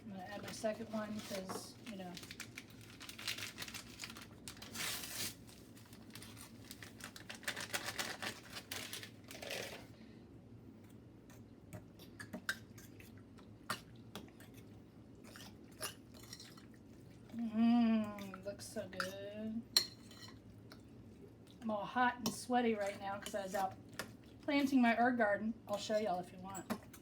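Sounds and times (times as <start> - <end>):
packet tearing and crinkling: 1.1 - 9.9.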